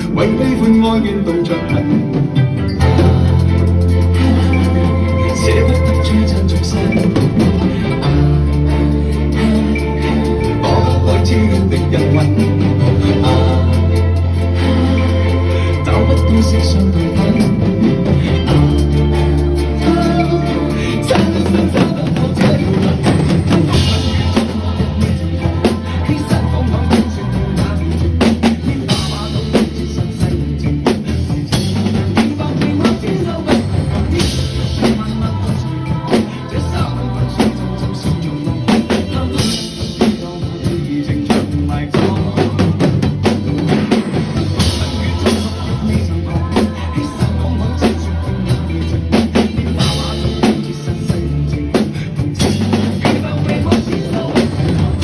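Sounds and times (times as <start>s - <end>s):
pop backing music: 0.0s - 55.0s.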